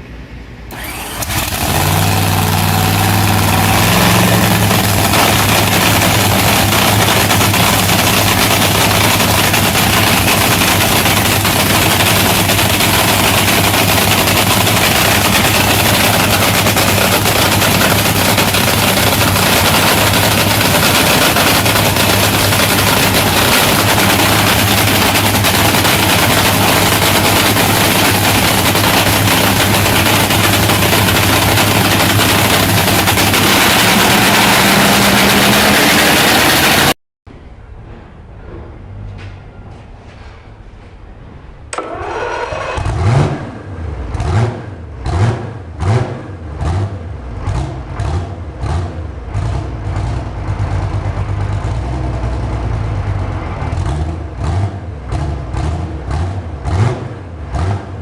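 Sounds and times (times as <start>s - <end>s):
large engine running: 0.1s - 37.0s, 41.2s - 58.0s.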